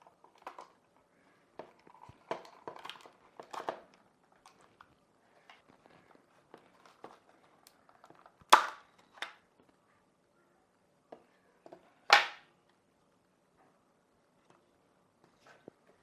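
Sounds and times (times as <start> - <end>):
handling noise: 0.0 - 9.4.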